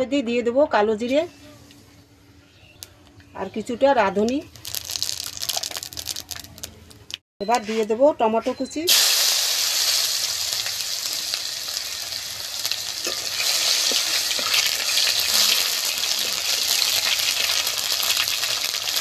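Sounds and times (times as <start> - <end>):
tomato sizzling in hot oil: 4.5 - 6.4, 8.9 - 19.0.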